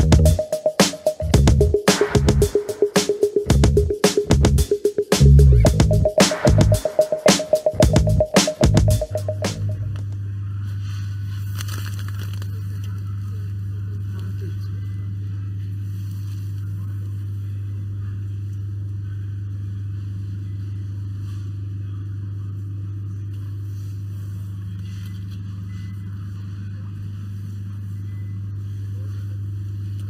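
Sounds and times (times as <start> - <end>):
steady low hum: 1.2 - 2.6, 3.5 - 6.8.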